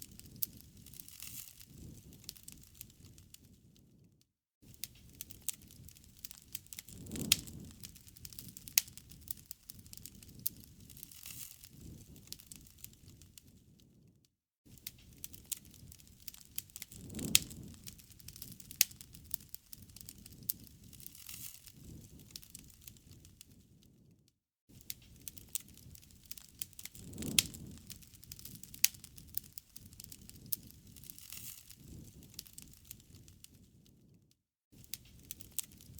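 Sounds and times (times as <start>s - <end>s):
campfire crackling: 0.0s - 3.6s, 4.7s - 13.6s, 14.7s - 23.7s, 24.8s - 33.9s, 34.8s - 35.9s
fire popping and snapping: 0.0s - 35.9s
burning logs rumbling: 5.1s - 11.1s, 15.2s - 23.2s, 25.2s - 33.2s.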